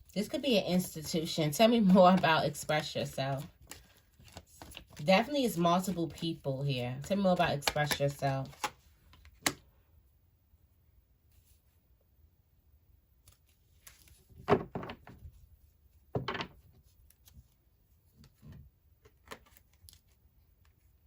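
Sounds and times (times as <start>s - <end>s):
cards knocking on a tabletop: 14.4s - 15.2s, 16.1s - 16.6s.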